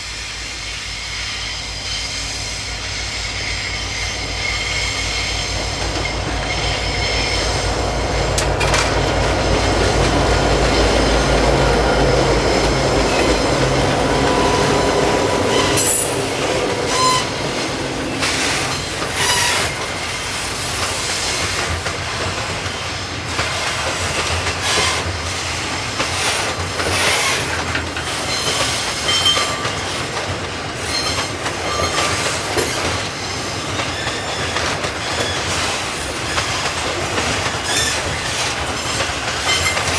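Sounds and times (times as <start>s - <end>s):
diesel locomotive engine hum: 0.0s - 39.9s
train wheels clicking over rail joints: 0.2s - 39.9s
thin wheel squeals: 11.3s - 20.2s.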